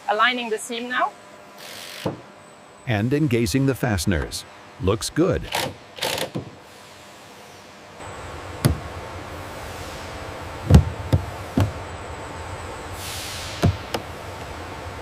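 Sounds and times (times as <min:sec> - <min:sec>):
steady background hum: 0:00.0 - 0:15.0
dull knocks: 0:08.6 - 0:08.9, 0:10.7 - 0:11.8.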